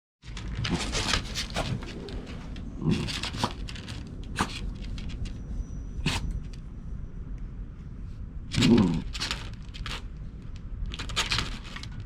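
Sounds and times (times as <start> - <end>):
dog sniffing and snuffling: 0.7 - 6.4.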